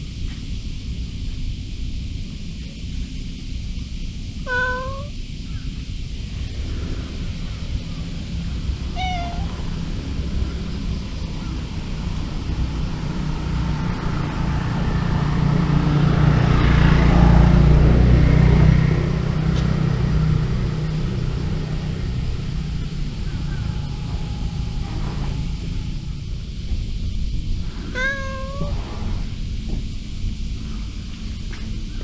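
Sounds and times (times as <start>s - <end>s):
cat meowing: 4.5s - 5.2s, 8.9s - 9.9s, 27.9s - 29.3s.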